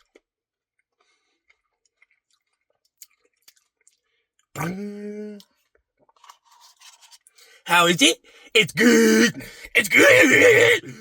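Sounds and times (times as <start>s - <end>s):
wet mouth clicks eating: 1.5s - 4.8s
person humming: 4.6s - 5.4s.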